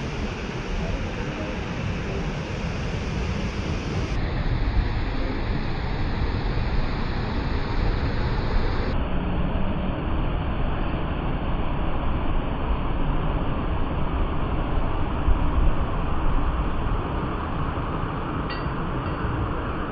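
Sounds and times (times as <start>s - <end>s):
large waterfall rushing: 0.0s - 9.0s.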